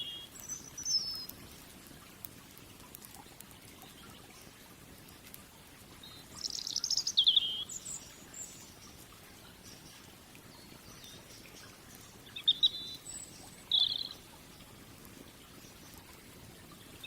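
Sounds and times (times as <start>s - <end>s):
songbird singing: 0.0s - 1.4s, 6.0s - 14.2s
faint background hiss: 0.0s - 17.0s.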